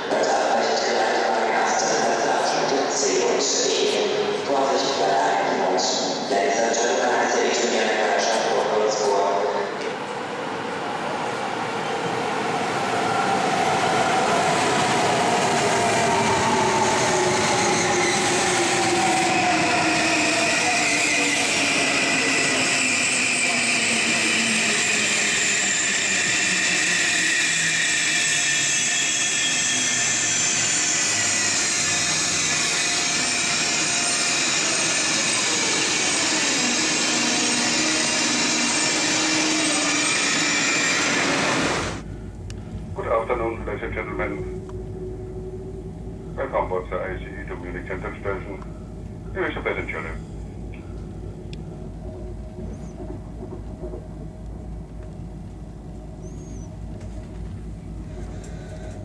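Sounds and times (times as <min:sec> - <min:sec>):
train wheel and air rush: 0:12.8 - 0:43.0, 0:50.2 - 0:59.0.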